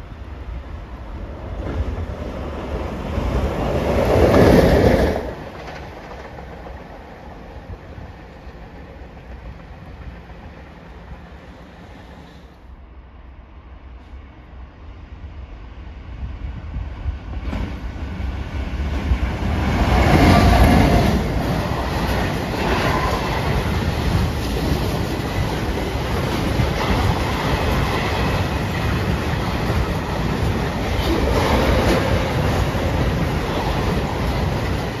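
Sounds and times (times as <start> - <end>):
freight train passing: 0.0 - 35.0.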